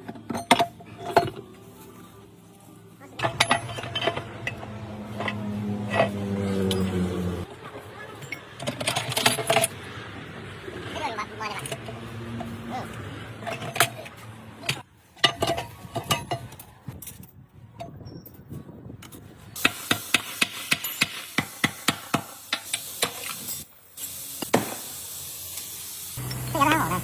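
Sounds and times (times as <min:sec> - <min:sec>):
hand tools tapping on metal: 0:03.2 - 0:07.0, 0:11.5 - 0:18.0, 0:19.0 - 0:23.7.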